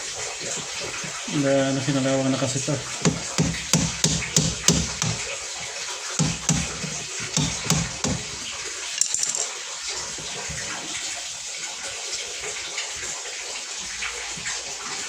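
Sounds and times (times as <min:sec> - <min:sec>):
running water: 0:00.0 - 0:15.0
knocks: 0:03.0 - 0:05.3, 0:06.2 - 0:08.4.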